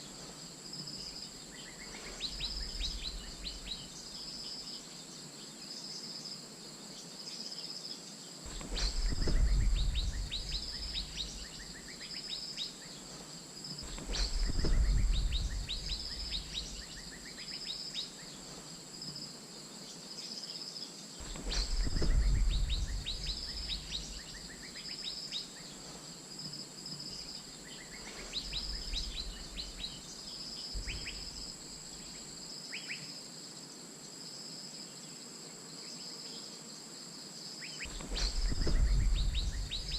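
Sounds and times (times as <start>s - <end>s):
insect drone: 0.0s - 39.9s
pulsing insect chirp: 0.0s - 39.9s
low rumble: 8.5s - 11.7s, 13.9s - 16.9s, 21.3s - 24.4s, 37.9s - 39.9s.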